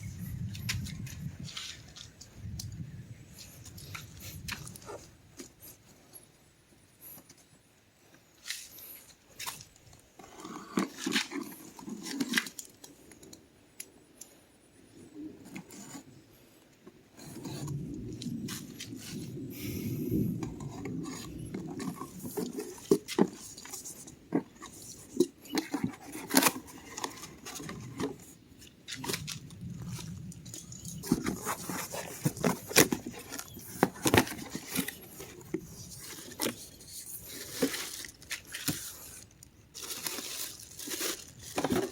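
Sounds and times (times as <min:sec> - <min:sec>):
rubbing and scraping: 0:17.2 - 0:41.9.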